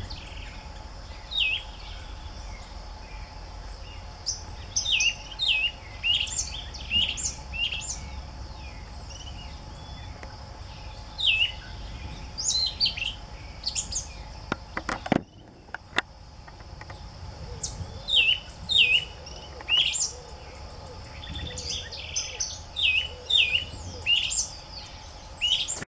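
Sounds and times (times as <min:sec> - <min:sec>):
high insect-like buzz: 0:00.0 - 0:25.8
small birds chirping: 0:00.0 - 0:25.8
sharp clicks: 0:14.5 - 0:17.0.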